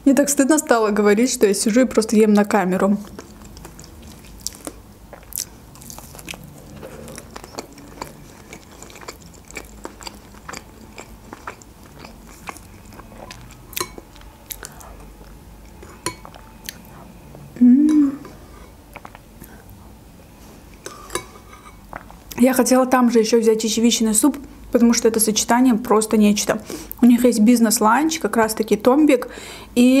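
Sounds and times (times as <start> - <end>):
chewing with wet smacks: 3.0 - 17.4, 18.9 - 20.0.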